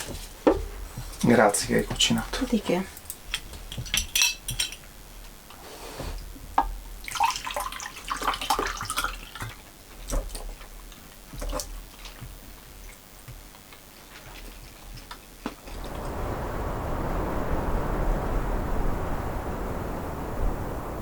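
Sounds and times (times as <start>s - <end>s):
water splashing and dripping: 7.0s - 9.6s.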